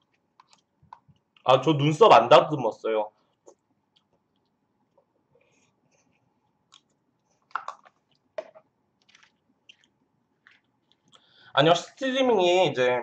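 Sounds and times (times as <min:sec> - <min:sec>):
wet chewing and mouth clicks: 0:03.3 - 0:04.6, 0:06.4 - 0:08.4, 0:09.0 - 0:11.3.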